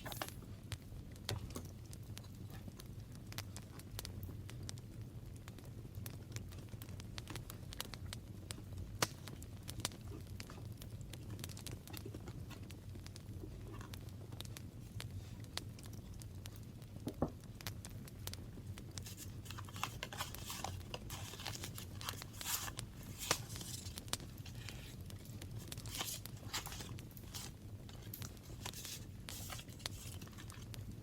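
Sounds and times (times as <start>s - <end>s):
paper tearing and crinkling: 19.0s - 25.0s, 25.6s - 30.7s.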